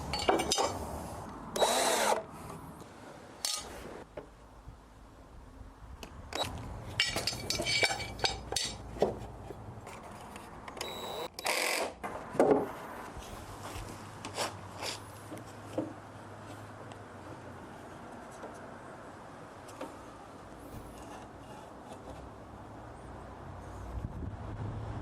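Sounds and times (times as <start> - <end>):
knocks and clinks of wood and hardware: 0.0 - 0.8, 6.9 - 10.0.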